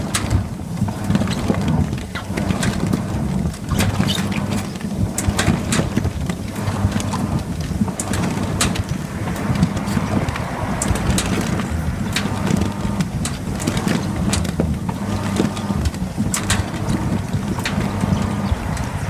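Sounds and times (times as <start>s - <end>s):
sharp clicks and knocks: 0.0s - 19.0s
washing machine hum: 0.0s - 19.0s.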